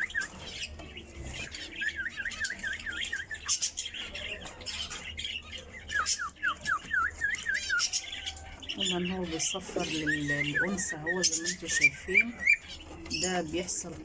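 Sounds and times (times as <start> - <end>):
bird chirps: 0.0 - 13.8
cockatiel whistling: 5.9 - 7.9.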